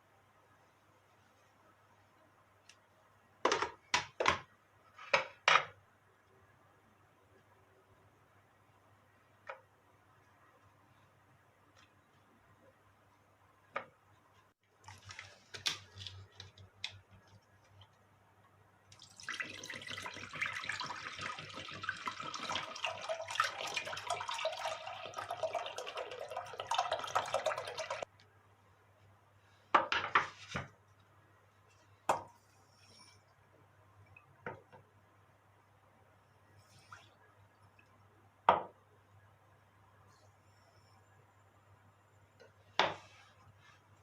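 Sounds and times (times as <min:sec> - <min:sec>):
tap water splashing into sink: 0:18.9 - 0:28.0.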